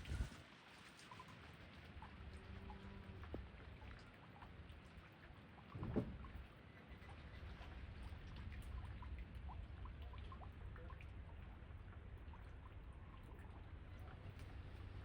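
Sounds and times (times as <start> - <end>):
low wind rumble: 0.0 - 0.4.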